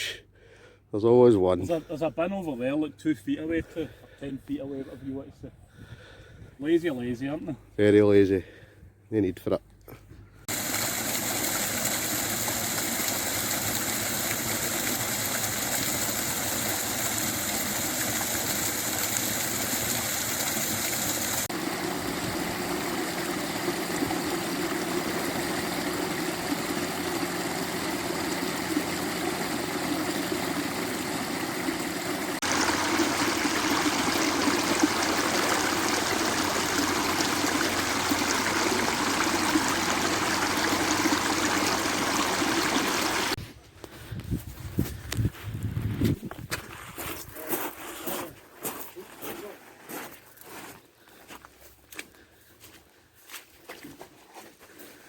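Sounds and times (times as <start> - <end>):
water flowing over rocks: 10.5 - 43.4.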